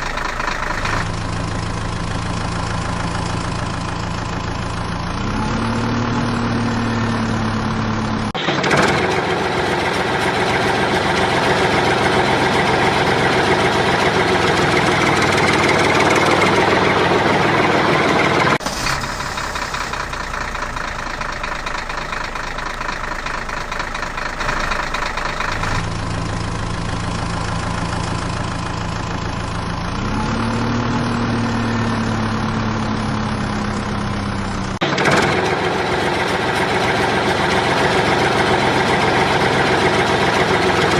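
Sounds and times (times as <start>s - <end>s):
heavy vehicle engines running: 0.0s - 40.9s.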